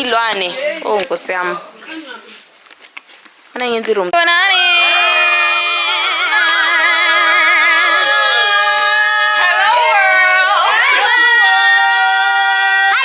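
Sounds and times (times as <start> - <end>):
person singing with vibrato: 4.2 - 13.0.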